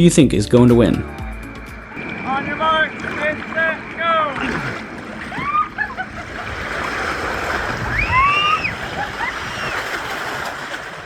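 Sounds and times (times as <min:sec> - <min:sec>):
water rushing down a slide: 0:01.9 - 0:11.0
riders shouting and squealing: 0:02.1 - 0:06.5, 0:07.6 - 0:10.5.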